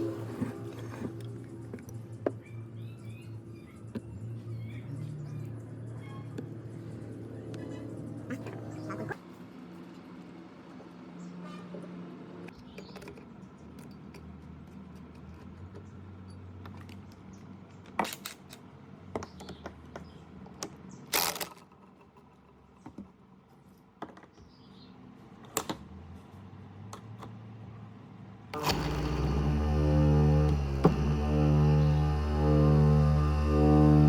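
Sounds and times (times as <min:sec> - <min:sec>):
loud multi-tone humming: 0:00.0 - 0:09.8, 0:28.5 - 0:34.0
faint low hum: 0:00.0 - 0:17.9, 0:28.5 - 0:34.0
small metal parts clicking: 0:20.5 - 0:22.8.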